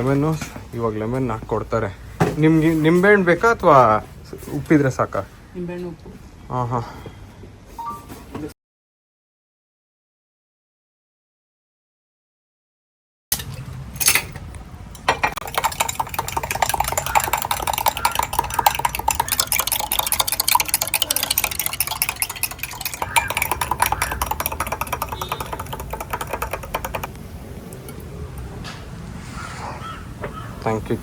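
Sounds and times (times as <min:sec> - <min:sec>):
spoon clinking against glass: 0:15.0 - 0:27.1.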